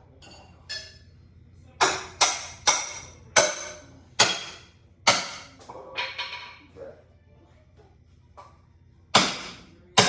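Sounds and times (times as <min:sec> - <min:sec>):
hammer striking metal: 0:01.8 - 0:06.4, 0:09.1 - 0:10.0.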